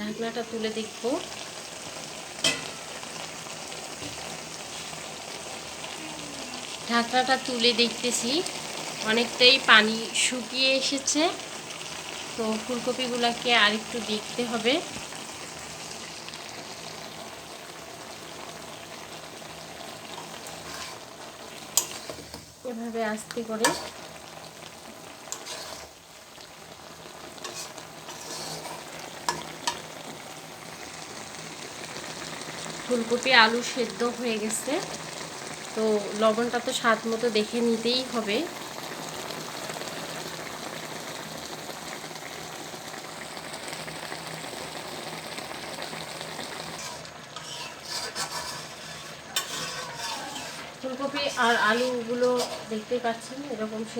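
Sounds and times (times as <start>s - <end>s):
vegetables sizzling in a pan: 0.0s - 53.9s
pan lid clink: 2.4s - 2.8s.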